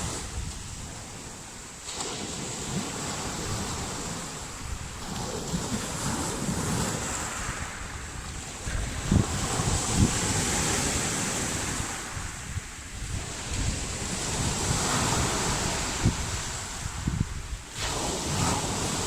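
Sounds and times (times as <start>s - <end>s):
waves breaking on shore: 0.0s - 19.0s
wind buffeting microphone: 0.0s - 19.0s.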